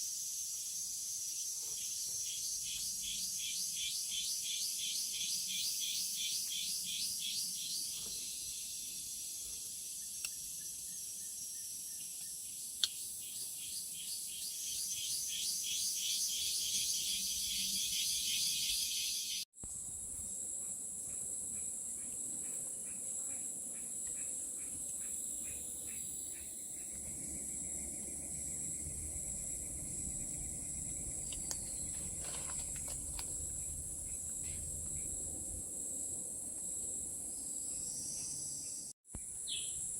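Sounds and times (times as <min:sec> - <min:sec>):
insects high-pitched drone: 0:00.0 - 0:39.9
insects pulsing high trill: 0:00.0 - 0:39.9.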